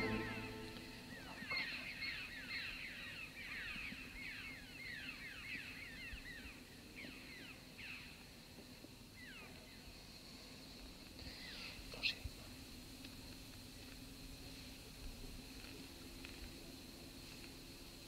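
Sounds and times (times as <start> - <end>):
birds chirping downward: 0.0 - 2.0.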